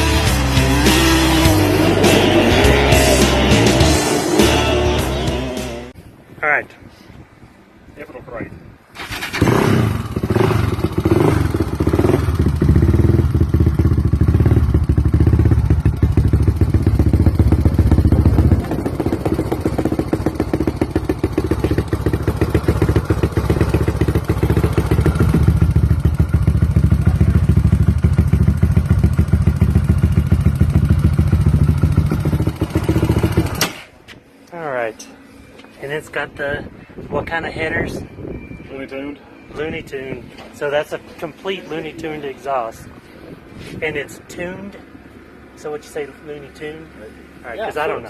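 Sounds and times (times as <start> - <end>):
atv engine starting and idling: 0.0 - 5.6, 9.0 - 33.8.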